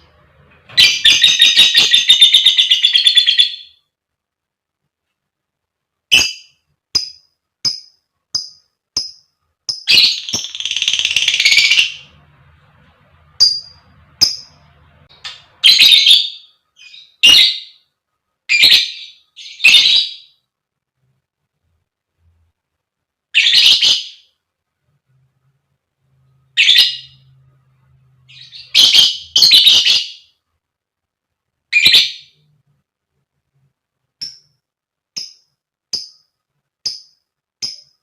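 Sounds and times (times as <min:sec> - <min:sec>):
bird chirping: 0:00.0 - 0:03.9, 0:06.1 - 0:20.5, 0:23.3 - 0:24.4, 0:26.2 - 0:30.4, 0:31.7 - 0:32.6.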